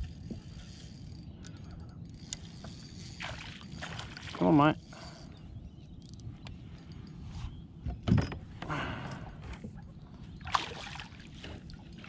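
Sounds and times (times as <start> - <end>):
water splashing: 10.4 - 11.5.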